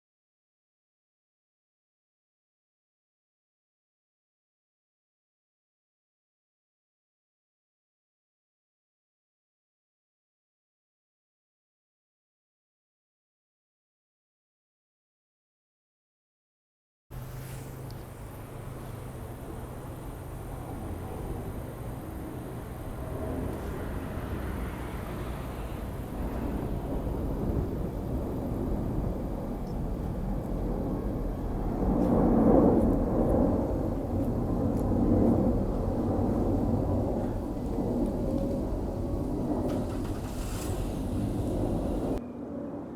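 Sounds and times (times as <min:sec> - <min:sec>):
airliner passing low overhead: 0:17.1 - 0:42.9.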